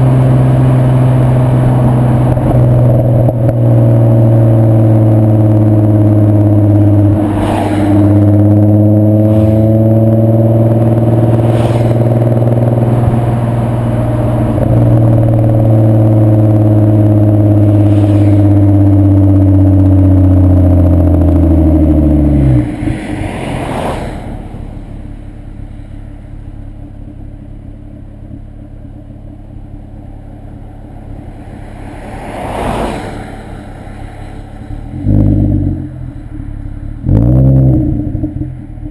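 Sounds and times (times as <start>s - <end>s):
car engine running loud: 0.0s - 38.9s
brief whooshes: 7.1s - 8.2s, 9.2s - 10.0s, 11.3s - 12.2s, 17.8s - 18.4s, 31.4s - 34.6s.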